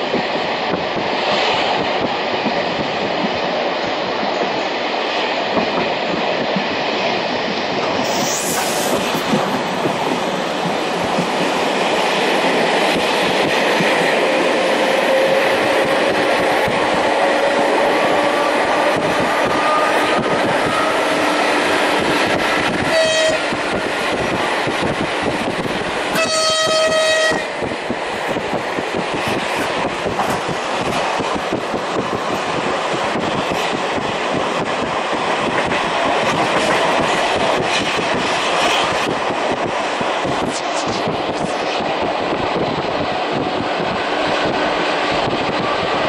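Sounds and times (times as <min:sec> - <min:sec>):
train running on rails: 0:00.0 - 0:46.0
train horn blasts: 0:17.3 - 0:21.8, 0:22.8 - 0:23.6, 0:26.1 - 0:27.6.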